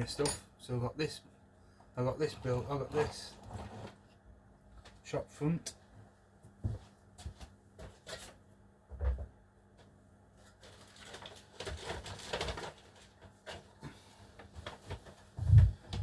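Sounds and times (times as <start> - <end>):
packaging rustling: 10.6 - 13.6.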